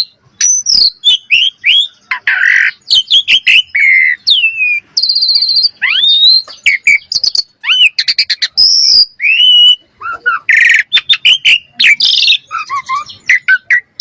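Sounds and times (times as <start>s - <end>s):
bird whistling gliding notes: 0.0s - 14.0s
harsh rasping bird call: 0.0s - 14.0s.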